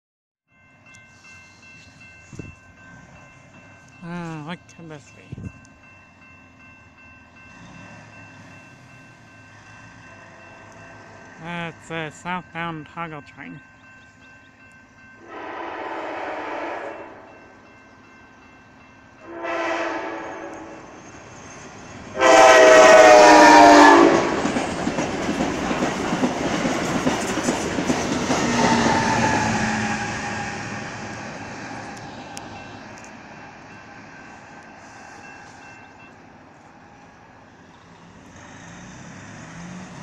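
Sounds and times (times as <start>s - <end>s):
train cars rushing and clattering: 0.6s - 15.5s, 16.4s - 40.0s
train horn blasts: 15.2s - 17.4s, 19.2s - 20.9s, 22.2s - 24.4s.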